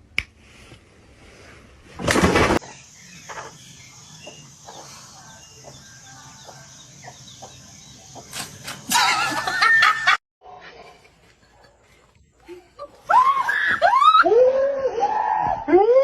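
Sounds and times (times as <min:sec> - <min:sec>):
faint animal noises: 0:02.6 - 0:08.7.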